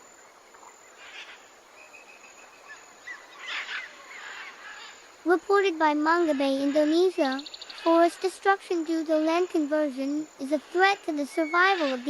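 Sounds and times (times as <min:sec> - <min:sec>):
bird chirps: 0:06.2 - 0:08.3, 0:10.5 - 0:12.0.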